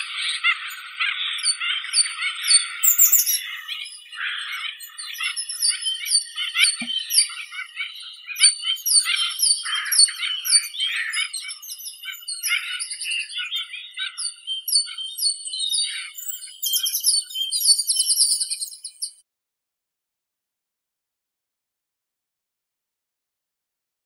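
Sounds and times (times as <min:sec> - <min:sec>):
birds chirping and trilling: 0:00.0 - 0:19.2.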